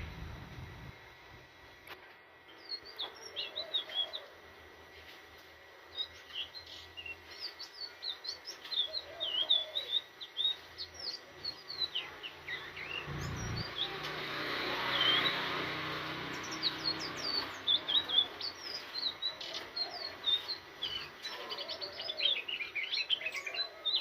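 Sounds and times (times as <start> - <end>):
bird singing high chirps: 6.0 - 14.0, 14.9 - 24.0.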